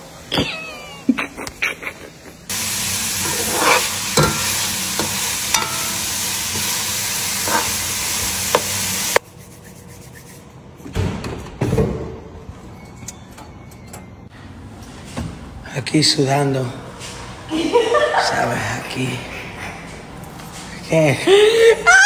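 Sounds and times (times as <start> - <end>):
meat sizzling in a pan: 2.5 - 9.2.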